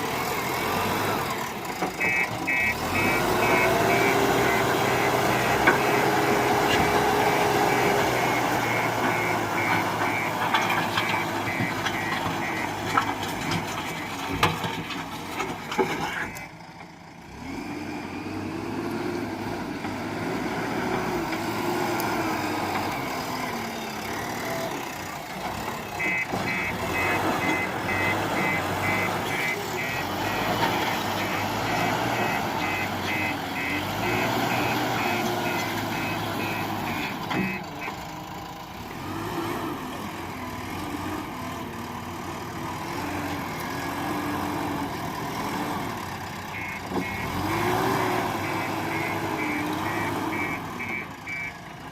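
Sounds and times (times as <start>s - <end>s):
diesel engine revving: 0.0s - 51.9s
reversing alarm beeps: 2.0s - 6.1s, 7.6s - 12.8s, 26.0s - 38.0s, 48.4s - 51.6s.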